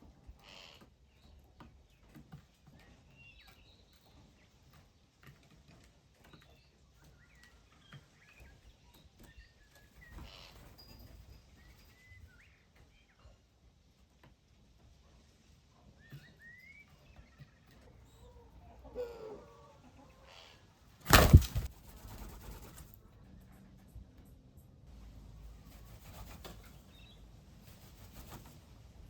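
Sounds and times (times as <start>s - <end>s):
small birds chirping: 0.0s - 23.0s, 25.4s - 29.0s
rustling: 21.0s - 23.0s.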